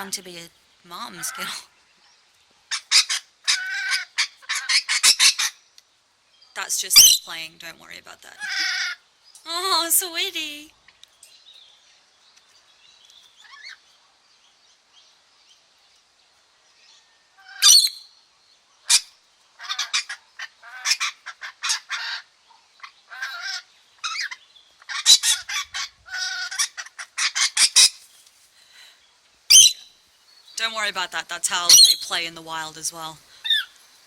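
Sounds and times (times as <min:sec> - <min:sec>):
lorikeets calling: 0:00.0 - 0:01.8, 0:02.7 - 0:05.8, 0:06.4 - 0:10.2, 0:17.4 - 0:18.2, 0:18.8 - 0:28.0, 0:29.5 - 0:34.0.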